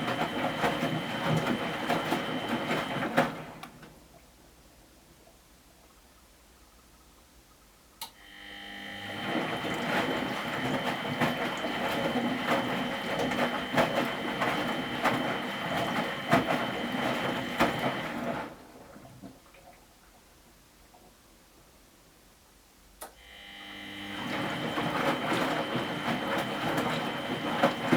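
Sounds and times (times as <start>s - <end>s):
washing machine drum whining: 0.0s - 3.6s, 8.5s - 18.7s, 23.5s - 27.9s.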